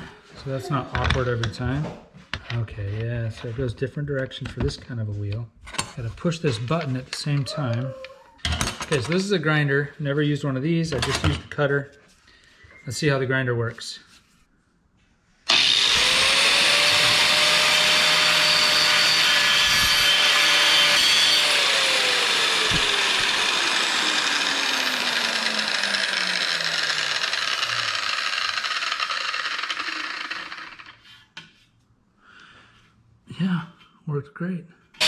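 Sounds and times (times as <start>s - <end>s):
grinder motor whine winding down: 15.5s - 31.0s
angle grinder grinding metal: 15.5s - 31.2s.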